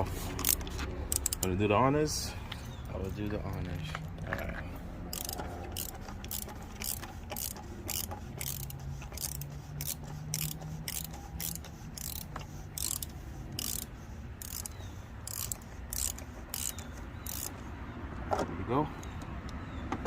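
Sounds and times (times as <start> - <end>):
socket ratchet clicking: 0.3 - 1.5, 5.1 - 17.6.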